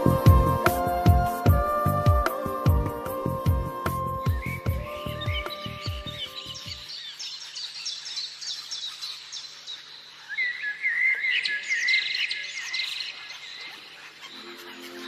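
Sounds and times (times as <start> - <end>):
songbird chirping and warbling: 0.0 - 15.0.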